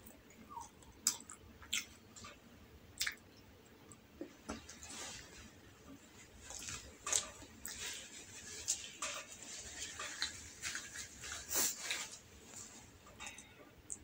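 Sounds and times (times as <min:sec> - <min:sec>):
close chewing with wet smacks: 0:00.0 - 0:02.4, 0:03.0 - 0:04.0
tissue rustling: 0:04.8 - 0:13.0.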